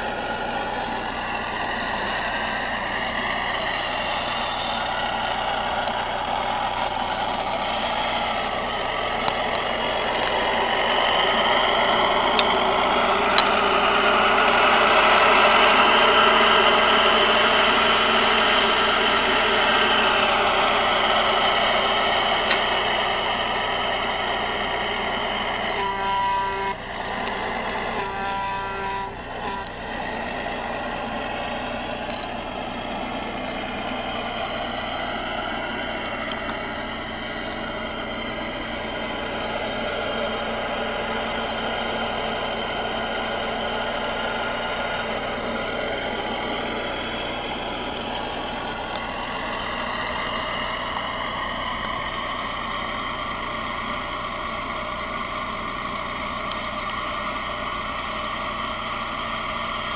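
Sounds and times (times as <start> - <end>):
truck engine running: 0.0 - 59.9
truck horn blasts: 10.4 - 19.7, 25.5 - 30.3.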